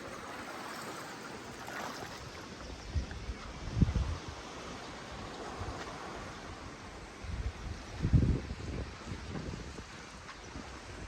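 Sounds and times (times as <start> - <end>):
sea surf: 0.0 - 8.0
wind on microphone: 2.1 - 11.0.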